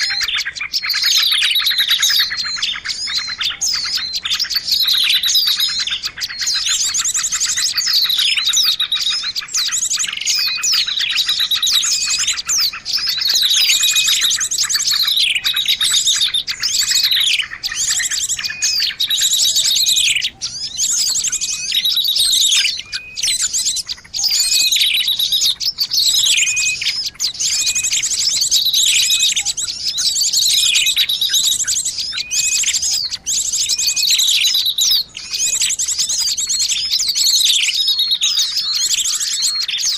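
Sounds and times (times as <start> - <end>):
buzzy bird trill: 0.0 - 39.9
songbirds chirping: 0.0 - 39.9.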